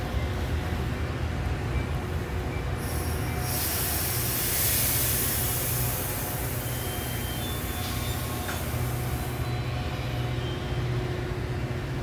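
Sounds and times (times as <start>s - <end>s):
train rumbling: 0.0s - 12.0s
train hiss: 2.7s - 10.9s.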